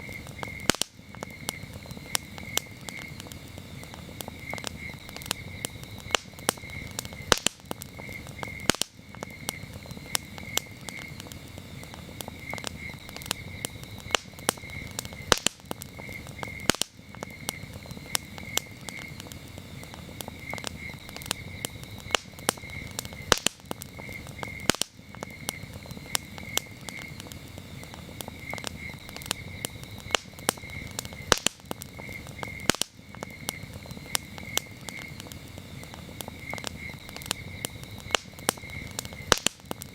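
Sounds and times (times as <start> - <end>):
campfire crackling: 0.0 - 39.9
crickets chirping: 0.0 - 39.9.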